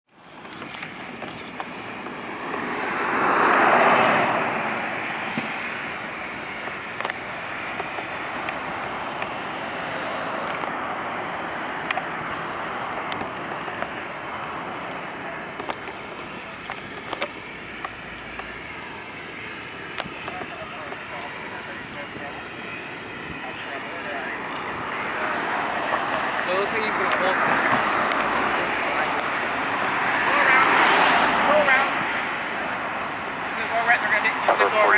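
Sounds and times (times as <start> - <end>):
jet engines rushing: 0.2 - 34.9.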